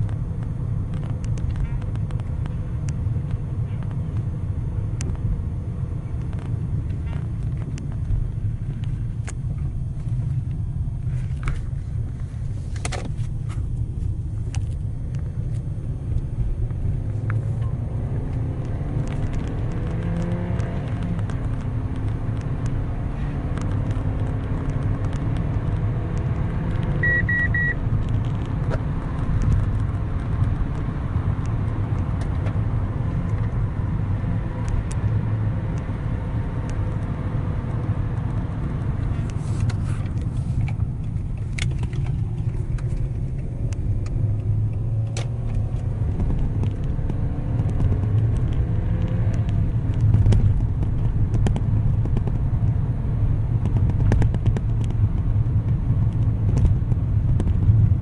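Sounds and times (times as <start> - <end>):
car engine and road noise: 0.0 - 58.0
short warning beeps: 27.0 - 27.8.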